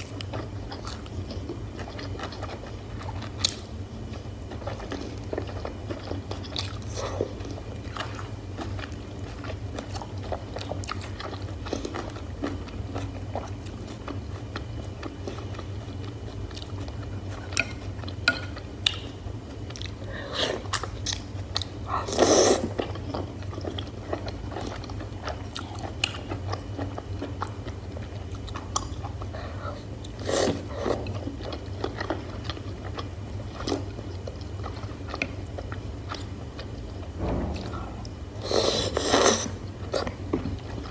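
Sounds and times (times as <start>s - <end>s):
low hum: 37.0s - 38.6s.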